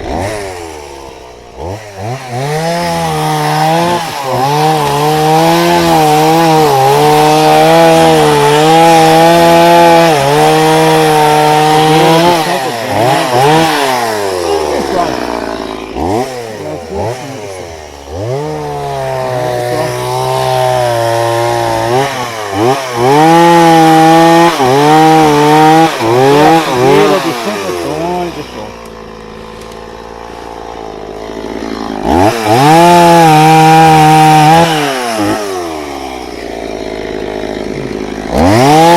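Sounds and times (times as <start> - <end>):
chainsaw cutting logs: 0.0 - 38.9.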